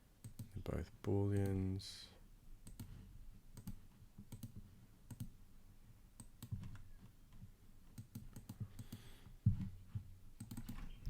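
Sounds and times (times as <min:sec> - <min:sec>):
keyboard and mouse clicks: 0:00.2 - 0:00.6, 0:02.6 - 0:02.9, 0:03.5 - 0:05.3, 0:06.2 - 0:06.8, 0:07.9 - 0:09.1, 0:10.4 - 0:11.0.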